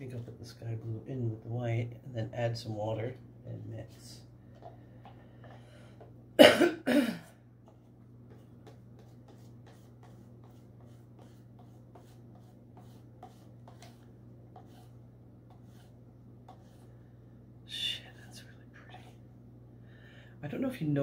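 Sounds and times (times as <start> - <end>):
stirrer tapping and scraping cup: 7.6 - 14.9
paint stirred in a cup: 7.6 - 16.9.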